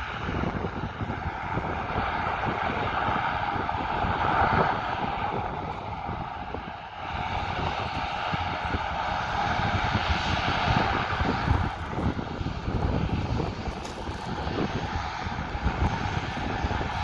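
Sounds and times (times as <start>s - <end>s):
aircraft engines running: 0.0s - 17.0s.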